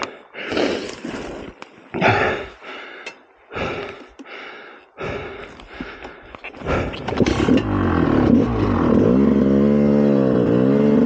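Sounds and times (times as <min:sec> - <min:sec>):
heavy breathing: 0:00.0 - 0:07.7.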